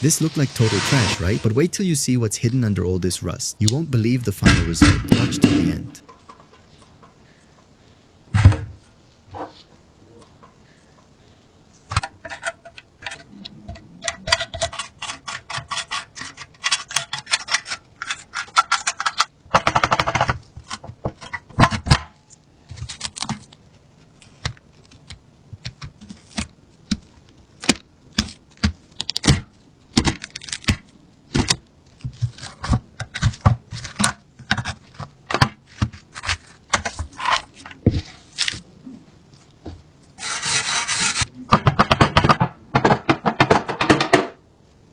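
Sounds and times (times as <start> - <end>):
metal scraping: 0.0 - 1.7, 4.3 - 6.1
metal gun parts clicking: 11.9 - 13.3, 14.0 - 21.5.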